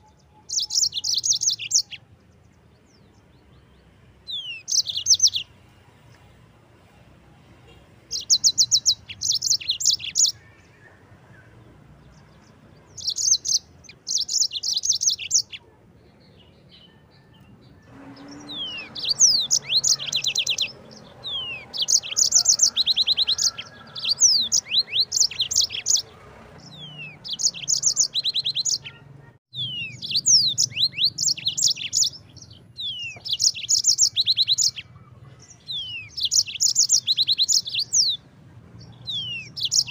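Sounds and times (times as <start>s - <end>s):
canary singing trills: 0.0s - 6.2s, 7.4s - 39.9s.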